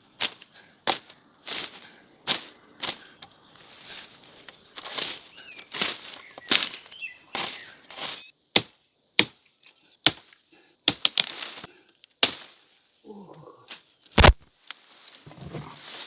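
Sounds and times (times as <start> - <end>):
chopping blows: 14.2 - 14.4.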